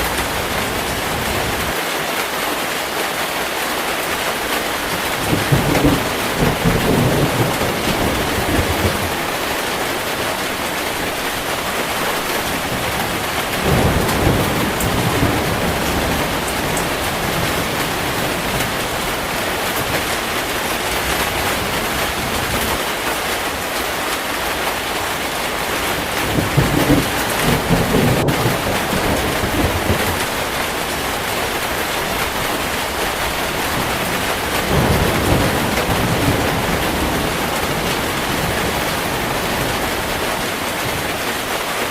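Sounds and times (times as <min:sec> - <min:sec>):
heavy rain: 0:00.0 - 0:41.9
thunder rumbling: 0:04.7 - 0:22.8, 0:24.9 - 0:41.5.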